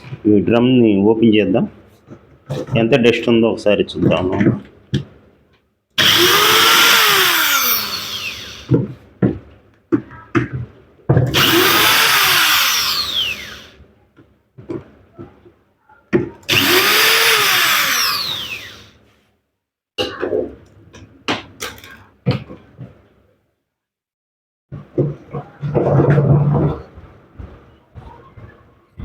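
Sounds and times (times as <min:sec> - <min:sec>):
handheld power tool motor: 0:06.0 - 0:08.7, 0:11.3 - 0:13.8, 0:16.5 - 0:18.9.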